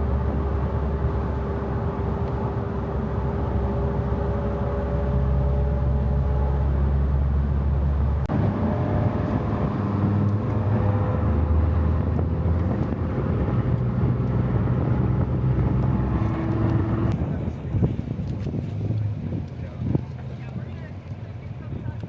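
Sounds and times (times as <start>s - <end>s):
road and wind noise: 0.0s - 22.0s.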